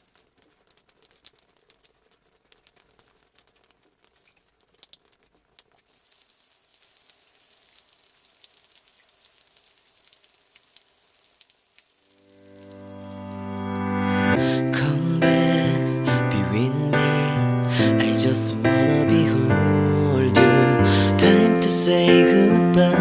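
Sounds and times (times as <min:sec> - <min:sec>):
water dripping: 0:00.0 - 0:14.8
rain patter: 0:00.0 - 0:22.6.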